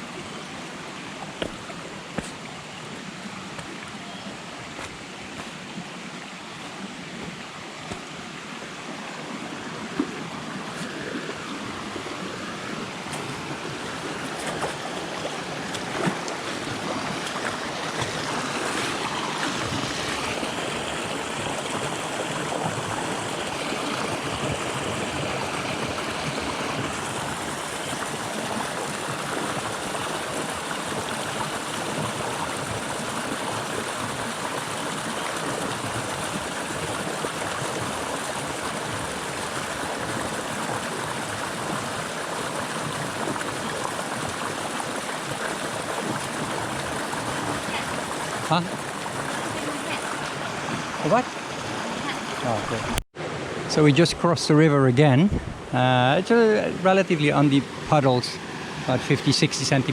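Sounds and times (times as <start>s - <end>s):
river water rushing: 0.0s - 54.6s, 55.6s - 59.9s
sharp knocks or splashes: 1.4s - 2.4s, 7.2s - 8.1s.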